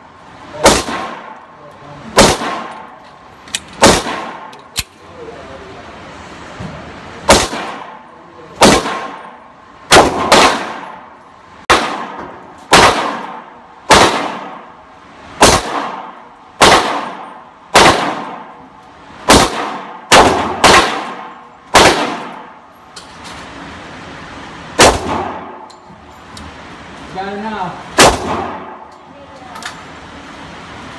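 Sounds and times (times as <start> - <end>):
gunshots: 0.6 - 1.4, 2.1 - 2.9, 3.8 - 4.6, 7.2 - 8.0, 8.6 - 11.0, 11.7 - 14.7, 15.4 - 18.6, 19.2 - 22.6, 24.8 - 25.7, 28.0 - 28.9.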